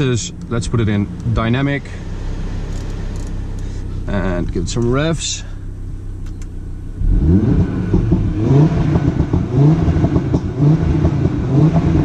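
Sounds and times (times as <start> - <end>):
car engine revving: 0.0 - 12.0
exhaust pops and crackles: 2.7 - 6.6, 7.9 - 12.0.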